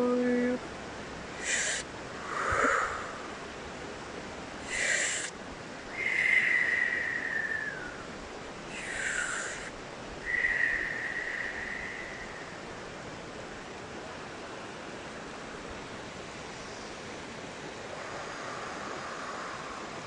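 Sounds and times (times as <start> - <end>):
stream rushing: 0.6 - 20.0
breathy blowing: 1.4 - 3.4, 4.6 - 5.3, 8.7 - 12.7.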